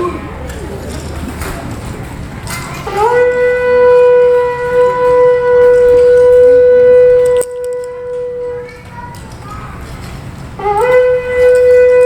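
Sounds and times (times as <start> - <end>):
long horn note: 2.8 - 8.7.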